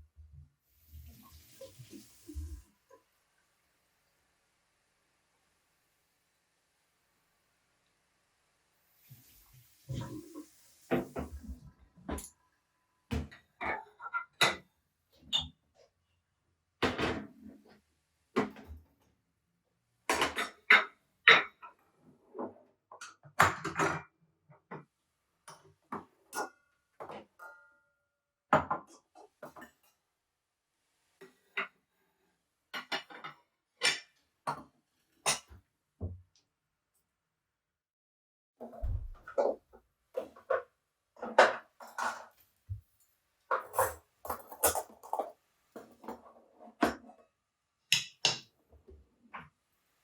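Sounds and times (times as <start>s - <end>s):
dishes and utensils clinking: 43.5s - 46.2s.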